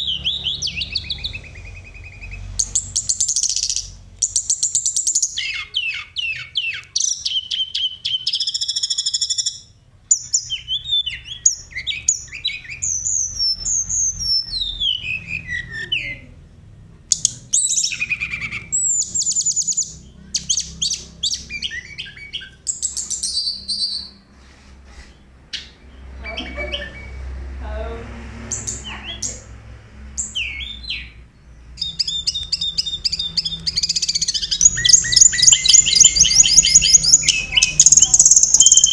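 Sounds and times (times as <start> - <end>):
bird singing trills and whistles: 0.0 - 16.3, 17.1 - 24.2, 30.2 - 31.2, 31.8 - 38.9.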